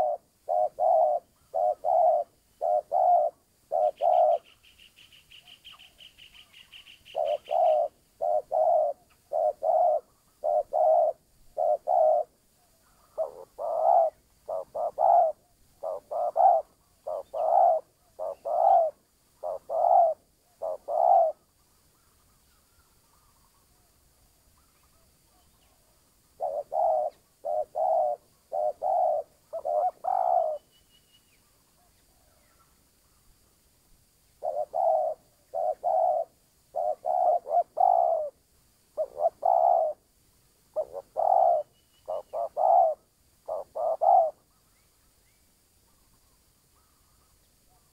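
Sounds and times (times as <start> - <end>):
dove cooing: 0.0 - 22.3, 24.6 - 30.7, 34.4 - 38.4, 39.0 - 40.0, 40.7 - 44.6.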